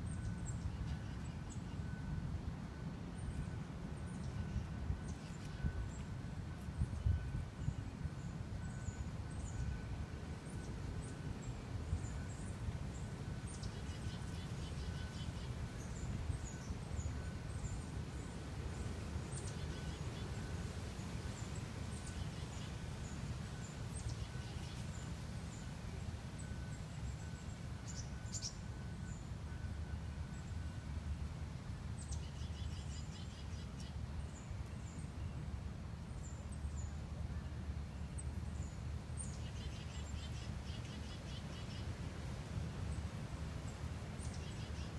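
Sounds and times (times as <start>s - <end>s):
small songbirds chirping: 10.5s - 20.4s, 21.3s - 25.8s, 26.4s - 29.3s, 32.0s - 35.5s, 37.9s - 42.0s, 44.2s - 44.9s.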